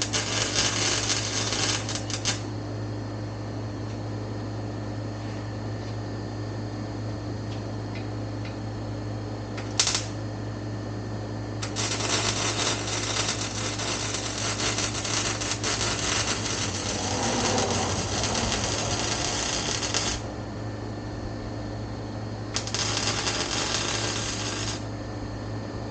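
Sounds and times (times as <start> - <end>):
welding arc crackling: 0.0 - 2.5, 9.6 - 10.2, 11.6 - 20.4, 22.5 - 24.9
low shop hum: 0.0 - 25.9.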